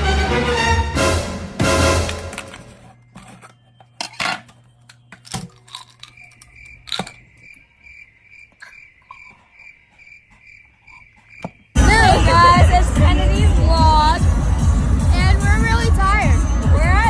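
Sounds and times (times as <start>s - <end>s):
insect-like pulsed chirping: 5.8s - 12.6s.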